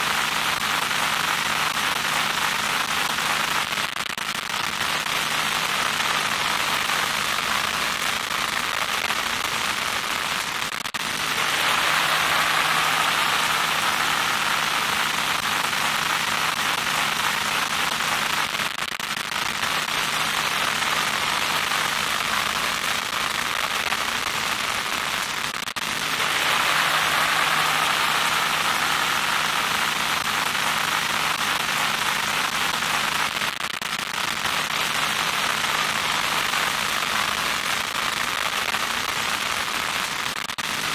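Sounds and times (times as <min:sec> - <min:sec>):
crackling static: 0:00.0 - 0:40.9
faint steady hum: 0:10.9 - 0:18.5, 0:25.8 - 0:33.1.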